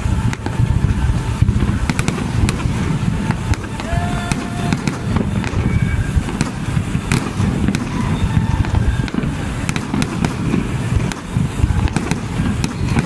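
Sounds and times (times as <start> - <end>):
faint crowd voices: 0.0 - 13.0
fireworks bangs and crackles: 0.0 - 13.0
fireworks deep booms: 0.0 - 13.0.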